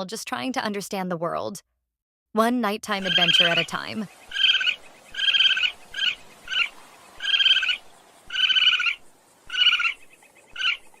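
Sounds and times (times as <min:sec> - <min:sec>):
animal trilled calls: 0:03.0 - 0:11.0.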